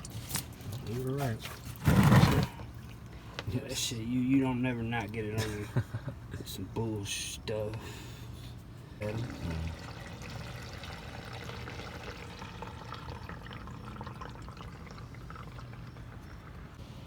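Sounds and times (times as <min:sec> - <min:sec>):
oil pouring into a pan: 0:09.7 - 0:16.4.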